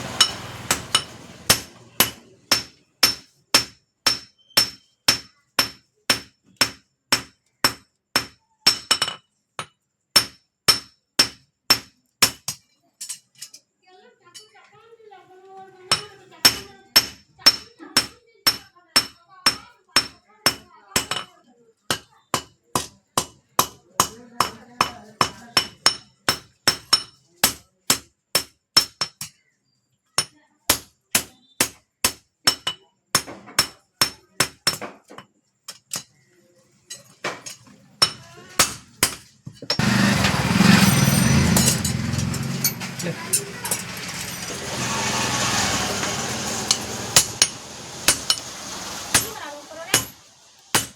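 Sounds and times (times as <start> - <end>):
hammer ringing on anvil: 41.0 - 42.9.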